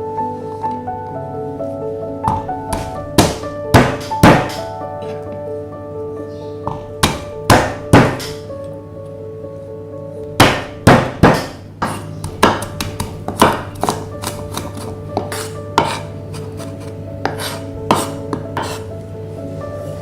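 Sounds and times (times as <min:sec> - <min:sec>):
soft background music: 0:00.0 - 0:20.0
kitchen utensils knocking: 0:02.3 - 0:04.7, 0:06.7 - 0:08.4, 0:10.4 - 0:16.1.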